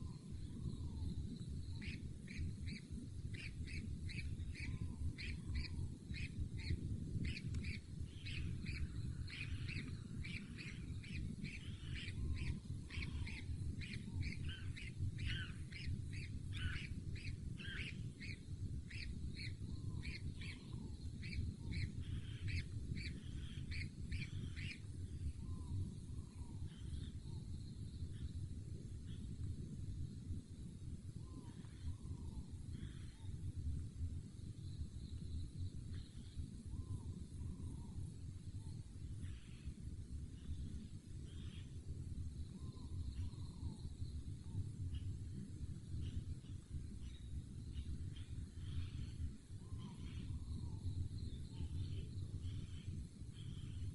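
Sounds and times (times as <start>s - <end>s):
bird chirping: 0.0s - 28.4s, 45.9s - 53.9s
steady low rumble: 0.0s - 53.9s.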